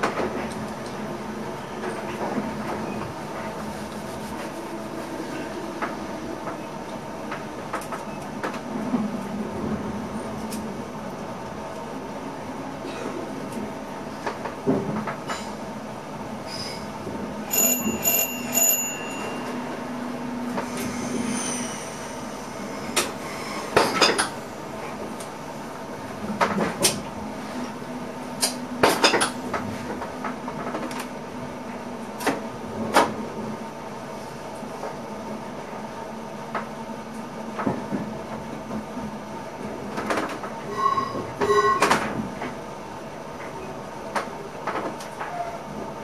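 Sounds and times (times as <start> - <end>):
train motors humming: 0.0 - 40.7
short high chime: 17.5 - 19.7.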